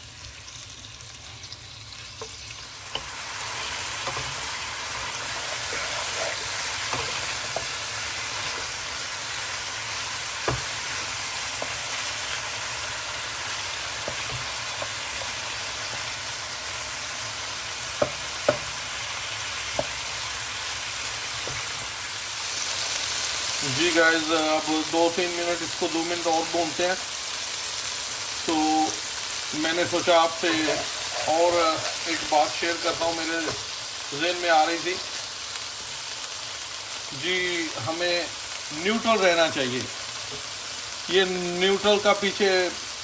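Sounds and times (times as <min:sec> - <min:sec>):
chicken sizzling in hot oil: 0:00.0 - 0:43.0
spoon knocking against pan: 0:10.4 - 0:10.8, 0:18.0 - 0:18.7, 0:19.7 - 0:20.0.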